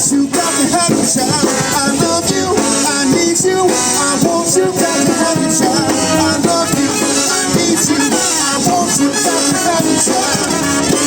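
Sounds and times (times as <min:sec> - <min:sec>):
brass-rock band playing: 0:00.0 - 0:11.0
drum beat: 0:00.0 - 0:11.0.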